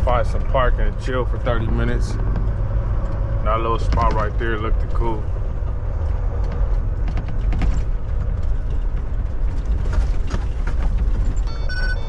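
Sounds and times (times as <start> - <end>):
diesel truck engine rumbling: 0.0 - 12.0
clicks and rattles from cab: 2.2 - 11.5
reversing alarm beeps: 11.4 - 12.0.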